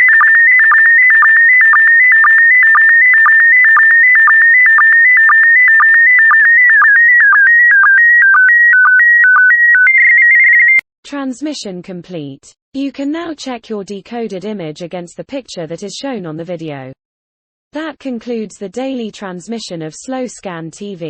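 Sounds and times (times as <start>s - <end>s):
stepped held beeps: 0.0s - 10.2s.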